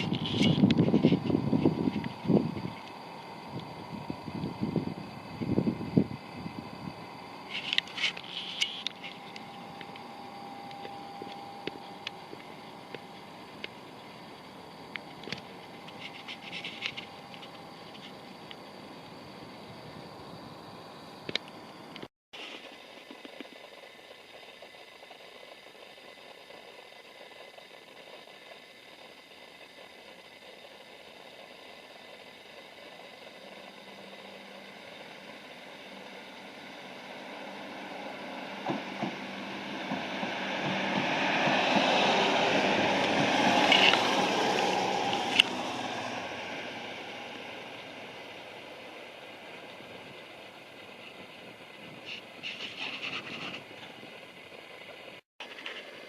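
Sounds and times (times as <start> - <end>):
rail vehicle passing: 0.0 - 22.0, 35.9 - 51.8.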